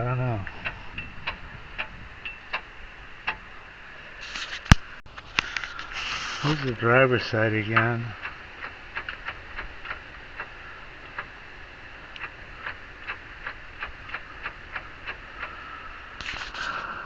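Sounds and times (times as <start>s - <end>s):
wheel hub ticking: 0.0s - 3.7s, 6.4s - 16.2s.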